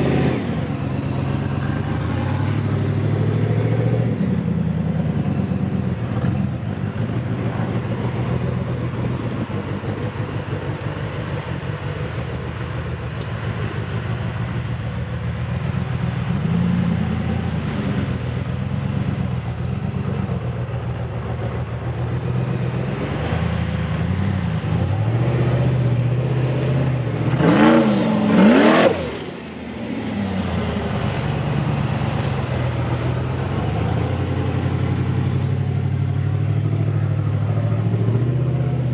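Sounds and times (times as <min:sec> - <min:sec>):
engine revving under load: 0:00.0 - 0:10.4, 0:22.2 - 0:38.9.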